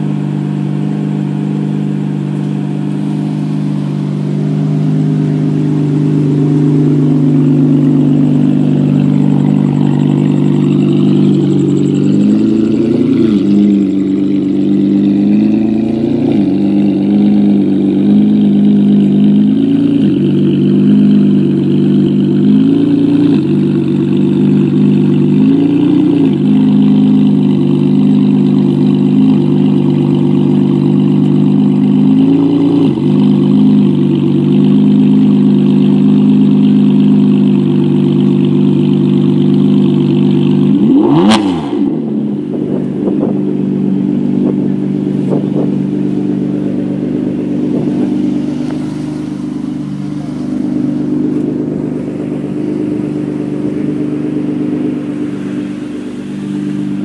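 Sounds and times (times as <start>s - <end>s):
sports car engine throttle blips: 0.0s - 57.0s
engine rev with a crack: 39.3s - 42.1s.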